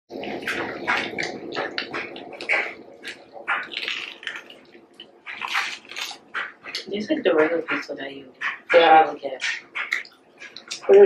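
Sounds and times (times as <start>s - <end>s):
mouth smacks: 0.1s - 8.8s, 9.4s - 11.0s
wet chewing: 0.1s - 11.0s
biting into food: 0.4s - 6.9s.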